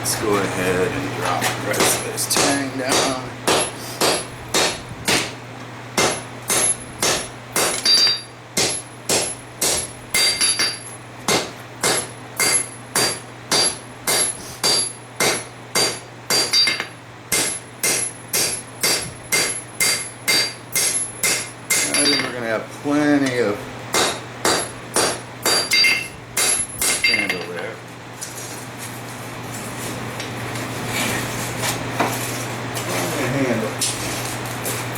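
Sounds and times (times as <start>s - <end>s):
hammer ringing on anvil: 6.0s - 10.9s, 11.8s - 22.4s, 24.0s - 27.6s.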